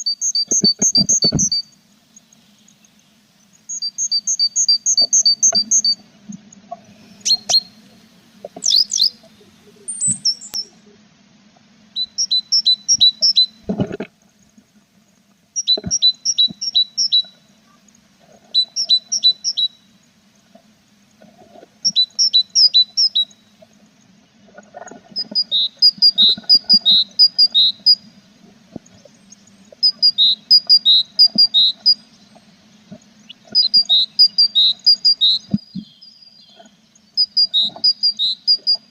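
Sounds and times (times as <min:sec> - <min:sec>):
steady low hum: 0:00.0 - 0:16.6
nestlings begging chirps: 0:00.1 - 0:06.0, 0:06.9 - 0:07.9, 0:08.6 - 0:10.7, 0:12.0 - 0:13.6, 0:15.6 - 0:17.3, 0:18.6 - 0:19.8, 0:33.2 - 0:38.8.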